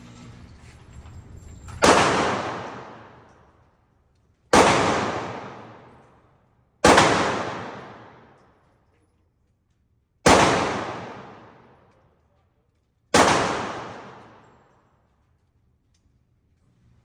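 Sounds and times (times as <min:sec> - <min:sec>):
handgun shots echoing: 0:01.8 - 0:03.4, 0:04.5 - 0:06.2, 0:06.8 - 0:08.4, 0:10.3 - 0:11.9, 0:13.1 - 0:14.8.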